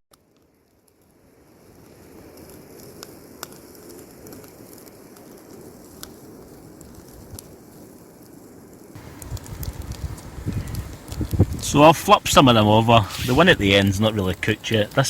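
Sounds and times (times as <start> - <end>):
campfire crackling: 0.1 - 15.0
food frying on a grill: 8.9 - 15.0.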